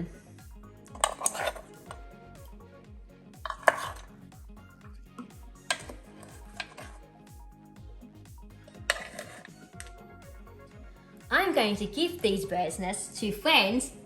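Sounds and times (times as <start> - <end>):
soft background music: 0.0 - 14.0
tray and utensils clattering: 8.8 - 9.5.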